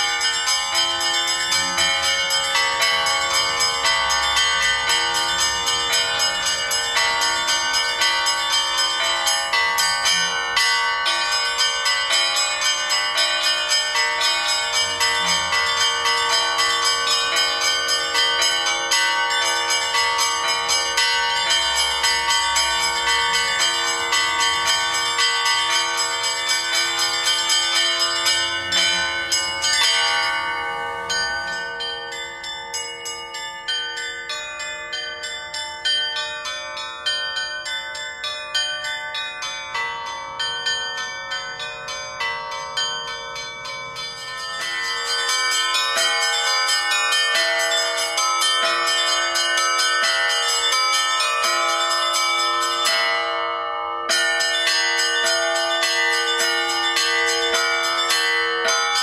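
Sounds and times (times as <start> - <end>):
bells ringing rapidly: 0.0 - 59.0.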